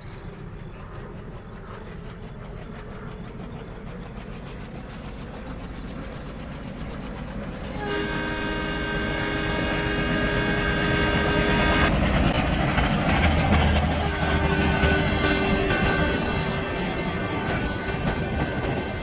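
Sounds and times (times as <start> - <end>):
train rumble: 0.0 - 19.0
train horn chord: 7.7 - 11.9, 13.9 - 19.0.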